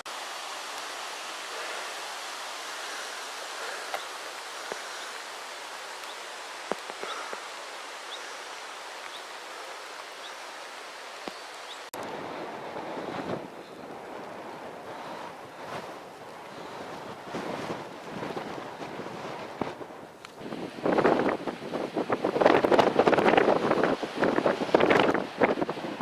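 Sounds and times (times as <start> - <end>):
running water rushing: 0.0 - 26.0
faint clicks: 3.9 - 5.2
wind on microphone: 12.0 - 26.0.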